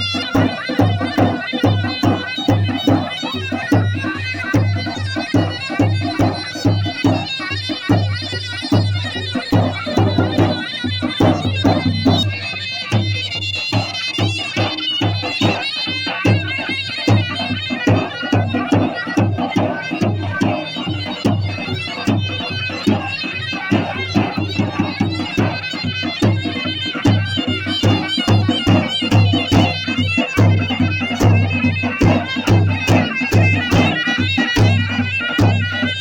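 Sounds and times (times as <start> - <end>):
reedy wind instrument melody: 0.0 - 36.0
steady drum beat: 0.0 - 36.0.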